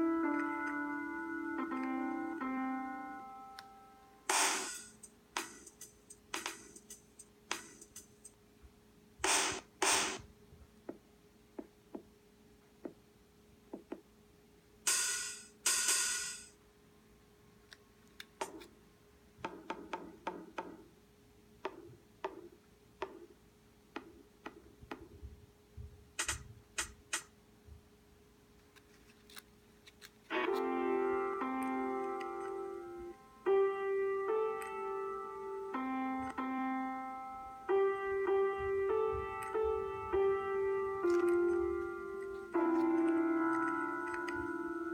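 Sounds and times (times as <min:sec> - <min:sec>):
piano music: 0:00.0 - 0:07.0, 0:30.3 - 0:44.9
faint steady hum: 0:00.0 - 0:44.9
paper rustling: 0:28.6 - 0:30.3.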